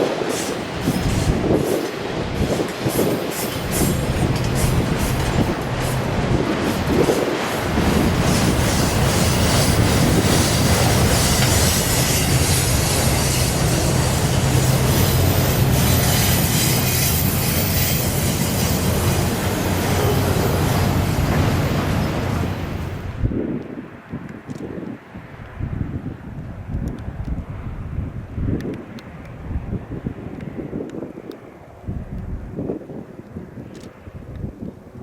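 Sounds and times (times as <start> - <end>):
wheels clicking over rail joints: 0.0 - 23.0
freight train rumbling past: 0.0 - 23.5.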